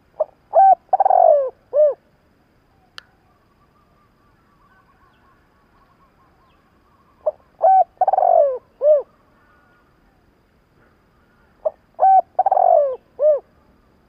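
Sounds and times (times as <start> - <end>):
dove cooing: 0.2 - 2.0, 7.2 - 10.2, 11.6 - 13.5
faint high twittering: 0.2 - 14.0.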